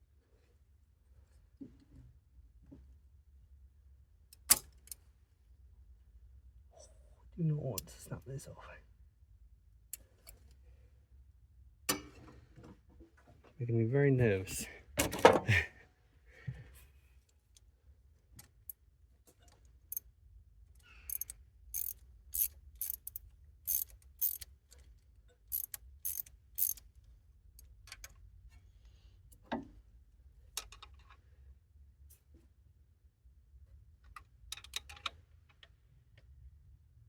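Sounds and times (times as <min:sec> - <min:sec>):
ratchet spanner clicking: 0:21.0 - 0:26.9.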